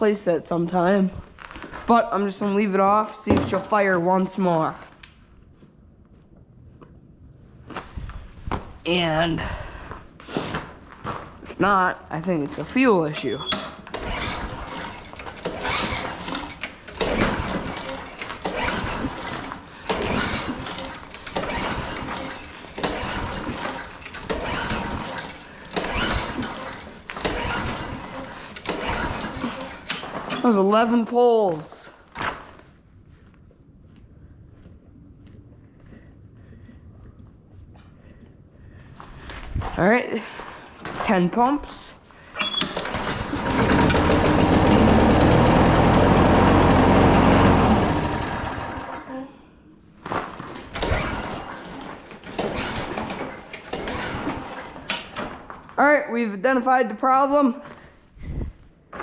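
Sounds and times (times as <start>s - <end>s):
lawn mower recoil cord pull: 13.5s - 30.5s, 42.4s - 49.3s
small engine cranking: 13.8s - 30.0s, 42.6s - 49.3s.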